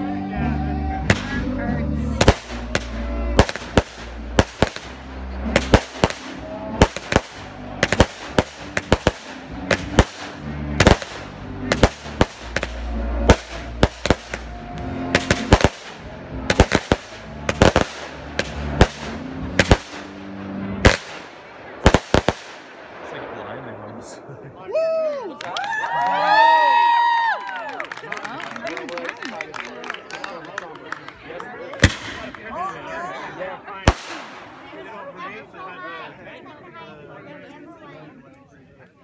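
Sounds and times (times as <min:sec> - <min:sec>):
firework launch rumble: 0:02.1 - 0:24.6
firework shells bursting with bangs: 0:02.2 - 0:14.5, 0:15.1 - 0:20.2.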